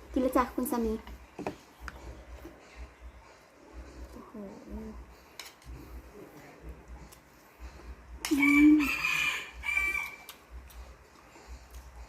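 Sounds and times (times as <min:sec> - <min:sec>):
rooster crowing: 0:08.3 - 0:10.3.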